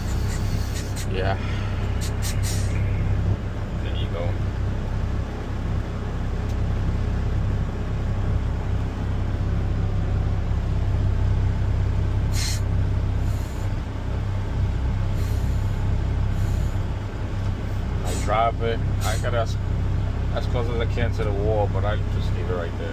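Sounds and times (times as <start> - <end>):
air hiss: 0.0 - 1.3, 1.9 - 3.0, 12.3 - 13.8, 15.1 - 16.8
garbage truck diesel engine: 0.0 - 22.9.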